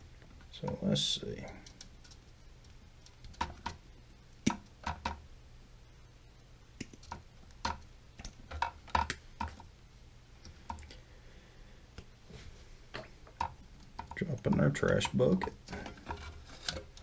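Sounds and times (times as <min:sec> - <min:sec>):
plastic parts clicking and tapping: 0:01.4 - 0:03.8, 0:06.8 - 0:09.7, 0:13.0 - 0:17.0.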